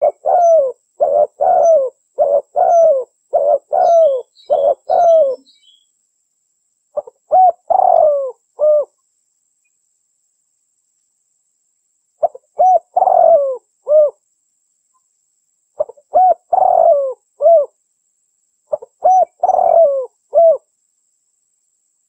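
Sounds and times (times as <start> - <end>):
dove cooing: 0.0 - 5.5, 7.0 - 8.9, 12.2 - 14.2, 15.8 - 17.8, 18.7 - 20.7.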